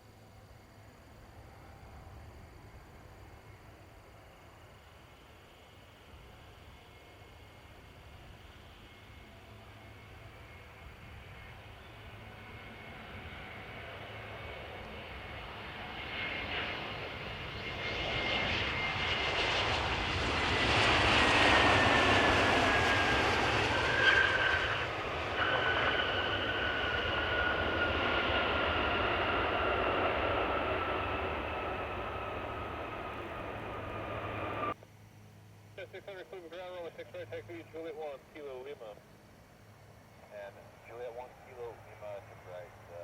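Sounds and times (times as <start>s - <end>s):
jet engine rumble: 1.0s - 34.8s.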